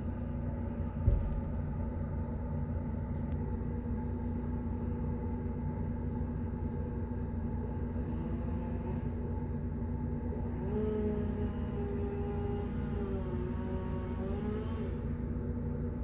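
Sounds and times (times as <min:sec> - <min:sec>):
engine running: 0:07.6 - 0:16.0.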